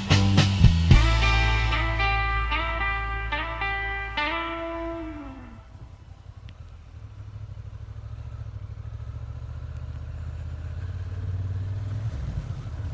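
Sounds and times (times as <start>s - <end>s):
guitar note: 0.0s - 6.6s
motorcycle engine rumbling: 0.0s - 12.9s.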